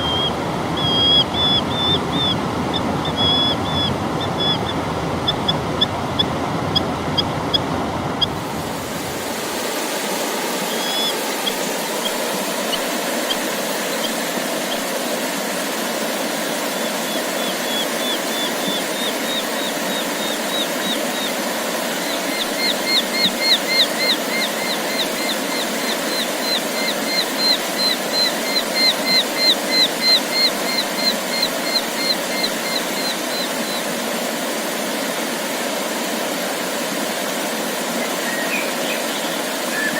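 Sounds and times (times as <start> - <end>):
songbird singing: 0.0 - 8.4, 10.7 - 14.8, 16.8 - 21.4, 22.0 - 33.8, 38.0 - 39.9
steady rushing noise: 0.0 - 39.9.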